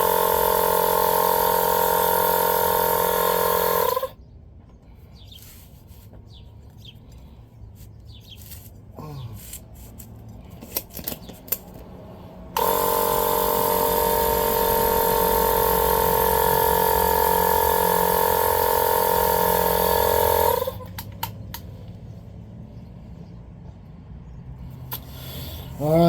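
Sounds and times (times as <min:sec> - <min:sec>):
tire inflator whining: 0:00.0 - 0:04.2, 0:12.3 - 0:21.8, 0:24.7 - 0:26.0.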